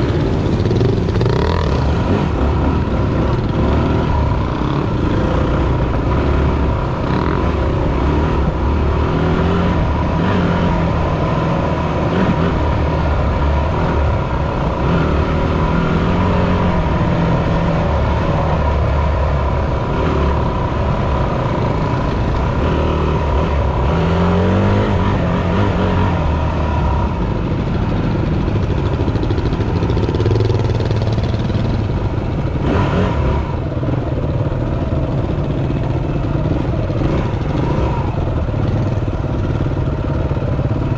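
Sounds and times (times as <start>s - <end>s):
dirt bike engine revving: 0.0s - 28.2s, 32.5s - 33.6s.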